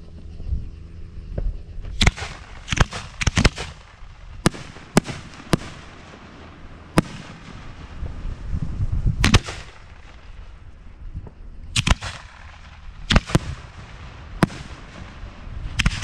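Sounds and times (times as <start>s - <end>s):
fireworks shells cracking with echo: 2.0s - 8.2s, 11.8s - 16.0s.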